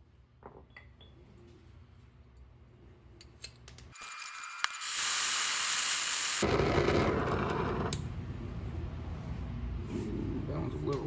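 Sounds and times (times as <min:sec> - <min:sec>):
gas hissing: 0:04.8 - 0:08.1
gas torch flame roaring: 0:04.8 - 0:08.2.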